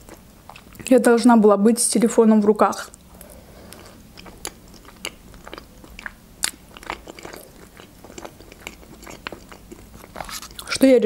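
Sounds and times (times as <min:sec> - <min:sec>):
person chewing: 0:00.0 - 0:00.8, 0:02.9 - 0:10.8.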